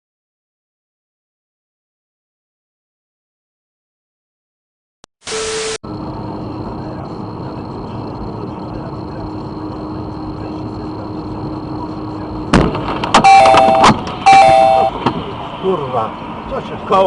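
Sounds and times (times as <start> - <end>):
truck running: 5.4 - 17.0.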